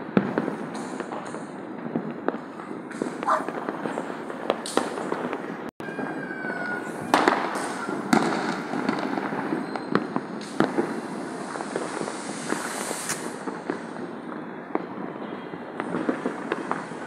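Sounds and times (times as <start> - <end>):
firecrackers crackling: 0.0 - 17.0
loud firework bangs: 0.0 - 17.0
firework whistle: 5.8 - 17.0.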